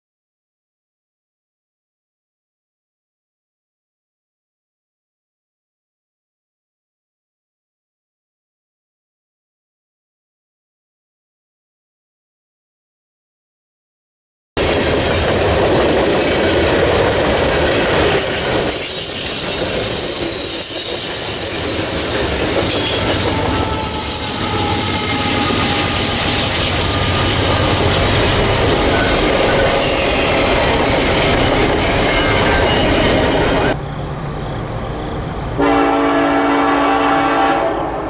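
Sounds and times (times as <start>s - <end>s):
train wheels rumbling on rail: 14.6s - 38.0s
high-pitched wheel squeal: 17.4s - 35.7s.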